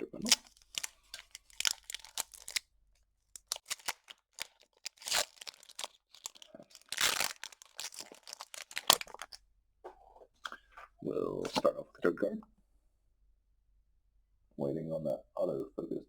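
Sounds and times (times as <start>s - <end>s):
foil wrapper tearing and crinkling: 0.2s - 2.6s, 3.4s - 9.4s.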